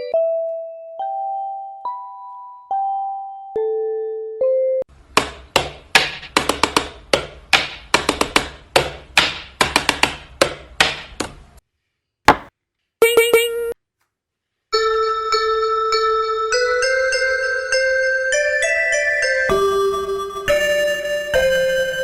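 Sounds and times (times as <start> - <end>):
sharp knocks or taps: 12.3 - 12.5.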